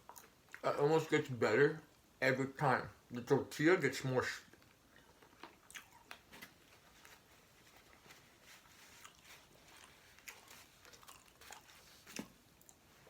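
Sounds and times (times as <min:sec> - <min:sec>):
chewing soft food: 0:00.0 - 0:00.6, 0:04.5 - 0:13.0.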